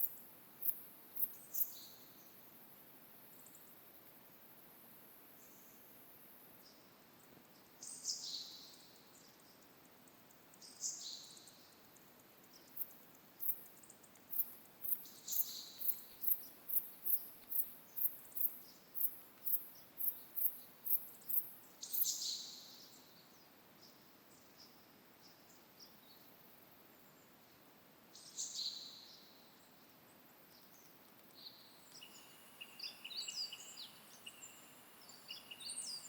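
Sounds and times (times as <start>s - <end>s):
faint outdoor hiss: 0.0s - 36.0s
songbirds calling: 6.6s - 36.0s
thin high ticks: 11.9s - 15.1s.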